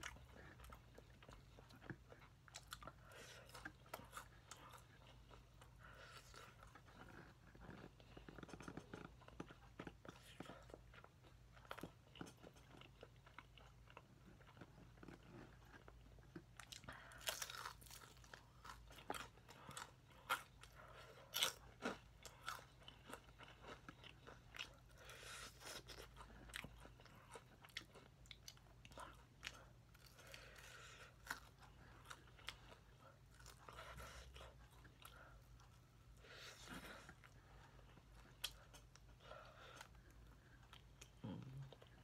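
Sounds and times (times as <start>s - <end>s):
crunching fried chicken: 16.7s - 34.8s.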